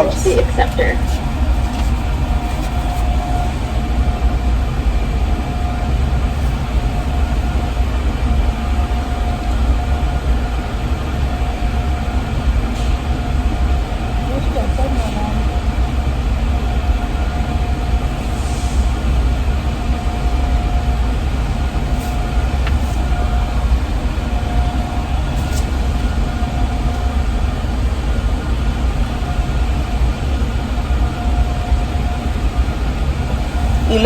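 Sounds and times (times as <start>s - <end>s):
car engine idling: 0.0s - 18.2s.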